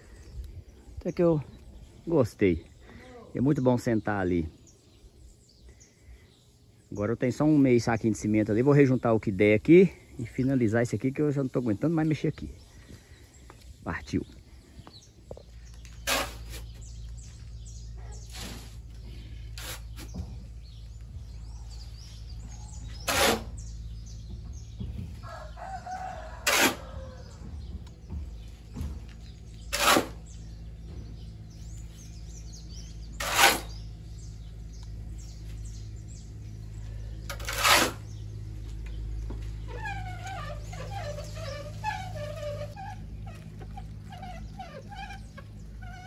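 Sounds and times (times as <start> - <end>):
low hum: 12.5 - 46.0
sharp scraping strokes: 15.9 - 17.4, 18.1 - 20.3, 22.0 - 23.7, 26.2 - 27.0, 29.4 - 30.4, 32.9 - 33.9, 37.2 - 38.3, 39.6 - 46.0
rooster crowing: 25.2 - 27.5.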